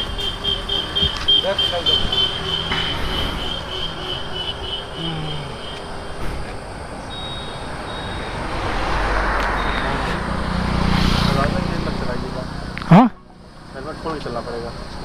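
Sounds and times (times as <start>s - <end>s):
vehicle engines rumbling: 0.0s - 15.0s
thin high whine: 1.4s - 11.6s.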